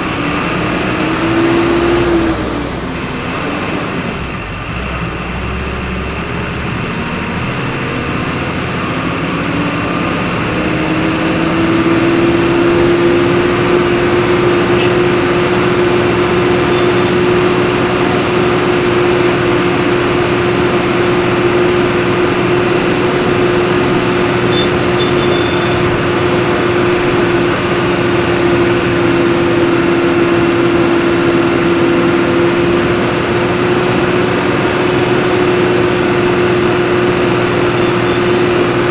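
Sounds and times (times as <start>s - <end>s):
bus diesel engine: 0.0s - 38.9s.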